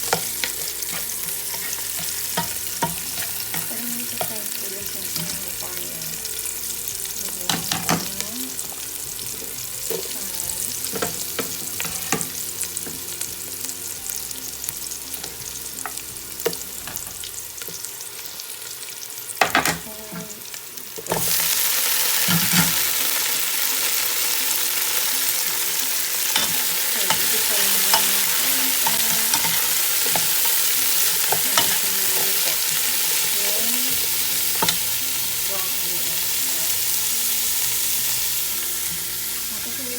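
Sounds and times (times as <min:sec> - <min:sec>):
utensil stirring and clicking on pan: 0:00.0 - 0:13.2, 0:25.4 - 0:37.0
food sizzling in hot oil: 0:00.0 - 0:39.9.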